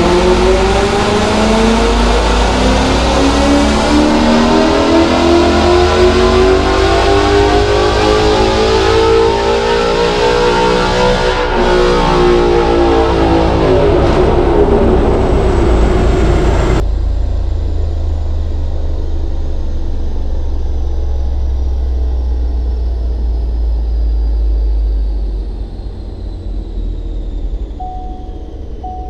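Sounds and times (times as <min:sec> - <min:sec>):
car engine revving at full throttle: 0:00.0 - 0:29.0
low rumble of engine and rollers: 0:00.0 - 0:29.0
faint falling whine: 0:11.2 - 0:29.0.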